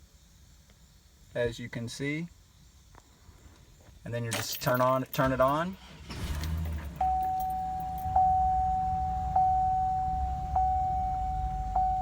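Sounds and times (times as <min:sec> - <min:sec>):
truck engine idling: 0:05.2 - 0:12.0
dashboard warning chime dinging: 0:07.0 - 0:12.0.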